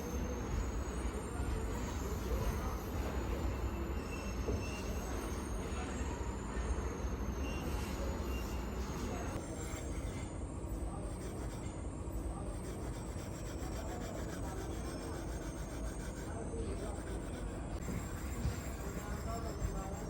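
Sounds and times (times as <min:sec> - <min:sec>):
metal scraping and rubbing: 0:07.6 - 0:20.0.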